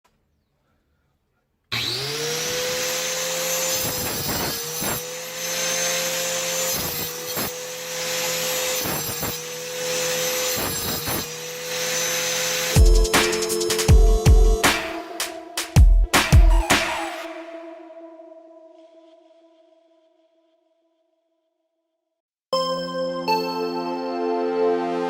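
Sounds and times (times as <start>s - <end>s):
angle grinder whining: 1.7s - 17.4s.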